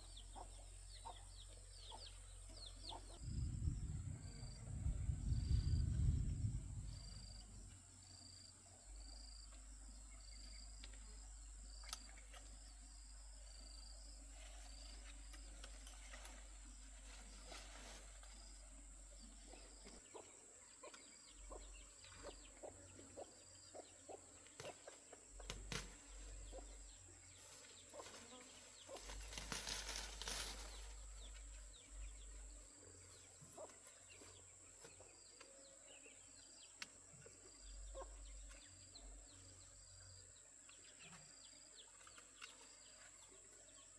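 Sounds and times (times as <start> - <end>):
rustle: 14.1 - 20.0, 24.4 - 35.6.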